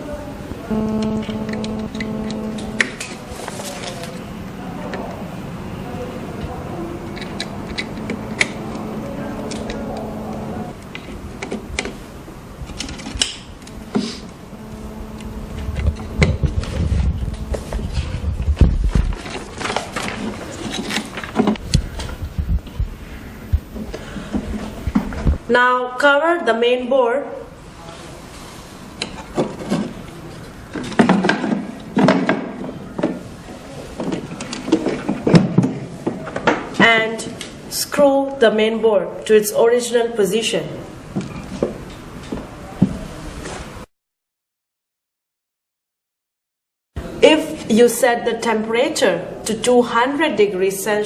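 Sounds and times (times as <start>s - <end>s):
faint steady hum: 0.0s - 26.2s.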